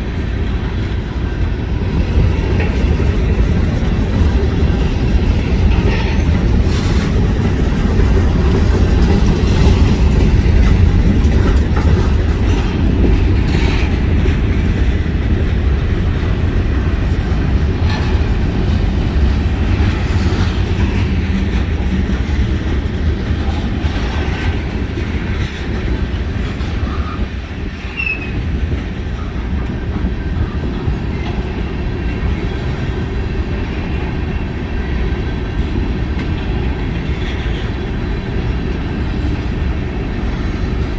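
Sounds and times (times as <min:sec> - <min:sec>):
freight train wheels rumbling: 0:00.0 - 0:40.9
train cars clanking: 0:00.0 - 0:40.9
faint wheel squeal: 0:27.9 - 0:28.4.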